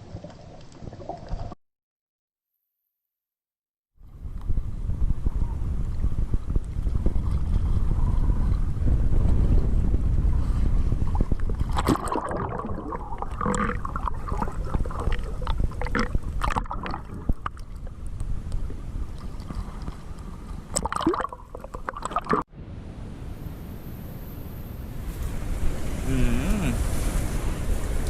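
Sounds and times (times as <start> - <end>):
wind buffeting microphone: 4.0 - 16.4
water splashing and gurgling: 11.0 - 22.5.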